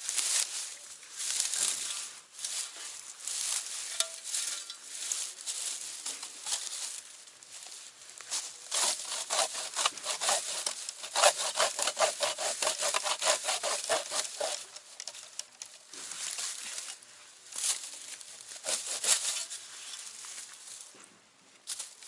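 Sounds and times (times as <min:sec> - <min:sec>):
hand saw cutting wood: 0:08.7 - 0:15.5, 0:18.6 - 0:19.6.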